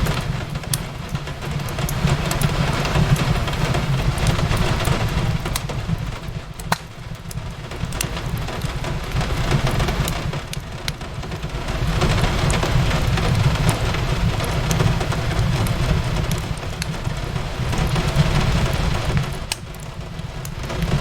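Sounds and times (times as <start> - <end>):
rain on a window: 0.0 - 21.0
wood fire crackling: 0.0 - 21.0.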